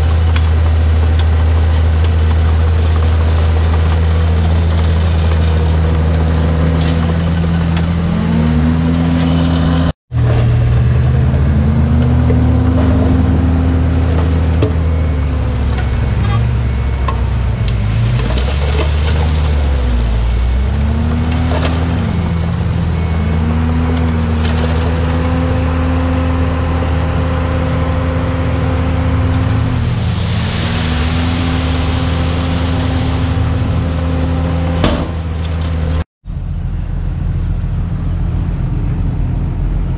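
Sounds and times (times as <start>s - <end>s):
diesel bulldozer engine revving: 0.0s - 39.9s.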